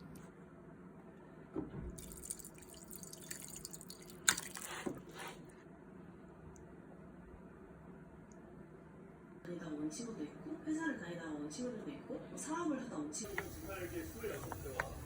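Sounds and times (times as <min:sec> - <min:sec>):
tap water running: 0:13.2 - 0:15.0
light knocks: 0:13.3 - 0:15.0.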